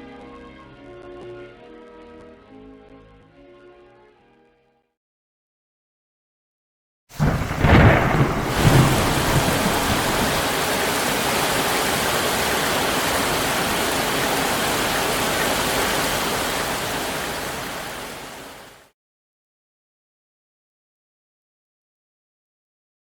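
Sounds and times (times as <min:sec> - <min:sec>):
heavy rain: 0:07.1 - 0:18.9
thunder rumble: 0:07.2 - 0:17.8.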